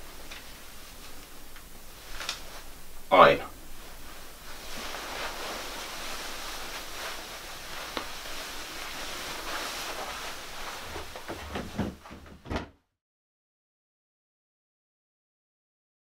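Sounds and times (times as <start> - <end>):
background hiss: 0.0 - 12.6
faint rustling: 0.0 - 12.6.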